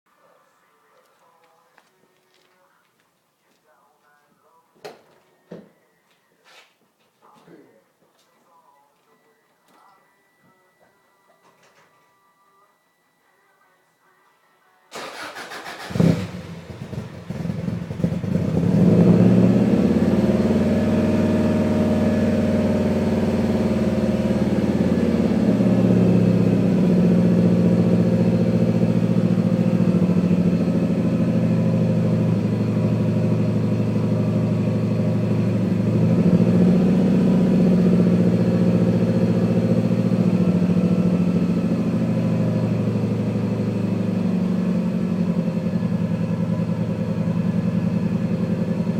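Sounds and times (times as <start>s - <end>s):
car engine starting and idling: 14.9s - 48.9s.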